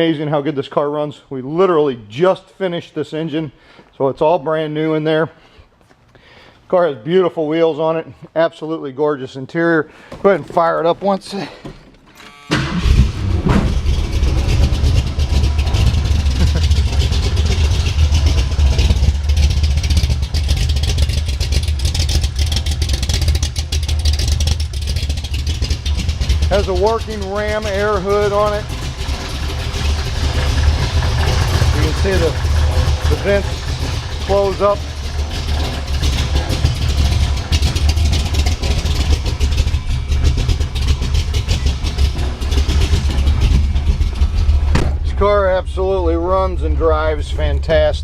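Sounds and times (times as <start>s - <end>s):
car engine idling: 12.5s - 48.0s.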